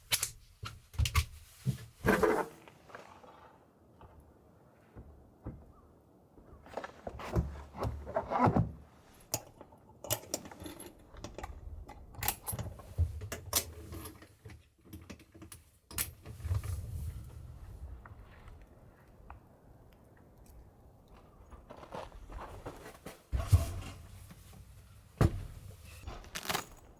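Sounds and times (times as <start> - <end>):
rustling: 21.2 - 26.9
small hard objects clinking: 26.0 - 26.9.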